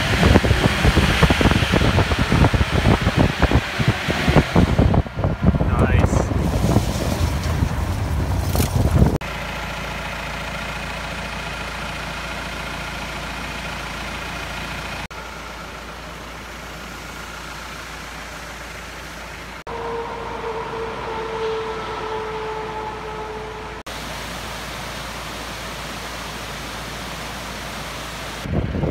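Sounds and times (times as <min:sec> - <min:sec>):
wind rumble on microphone: 0:00.0 - 0:09.2, 0:28.5 - 0:28.9
diesel engine running: 0:00.0 - 0:28.9.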